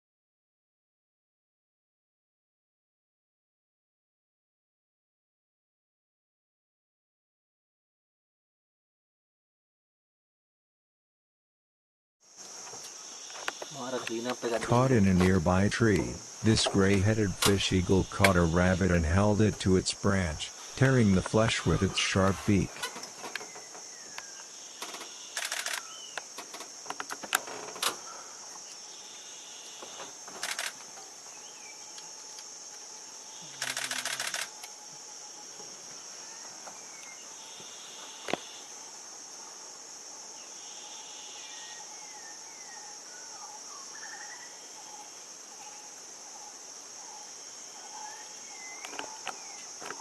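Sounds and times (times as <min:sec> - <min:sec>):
insects droning: 0:12.2 - 0:50.0
faint bird chirps: 0:21.6 - 0:26.3, 0:40.3 - 0:50.0
camera shutter clicking: 0:25.4 - 0:25.9, 0:30.4 - 0:30.8, 0:33.6 - 0:34.5.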